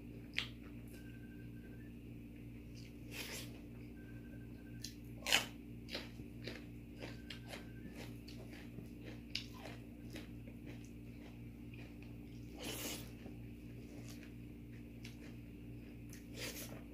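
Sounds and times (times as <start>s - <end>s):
person chewing crunchy food: 4.8s - 16.9s.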